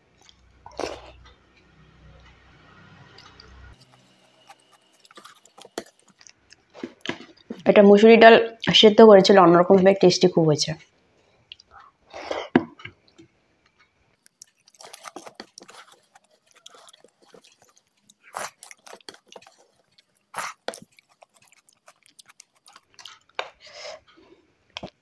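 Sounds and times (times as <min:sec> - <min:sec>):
person chewing with lip smacks: 0:00.2 - 0:01.4, 0:03.2 - 0:07.6, 0:11.5 - 0:11.9, 0:14.2 - 0:23.6.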